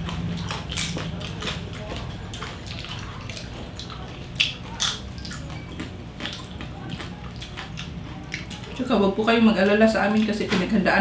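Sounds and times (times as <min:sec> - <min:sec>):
crispy skin crunching: 0:00.0 - 0:08.8
wet chewing: 0:00.0 - 0:10.3.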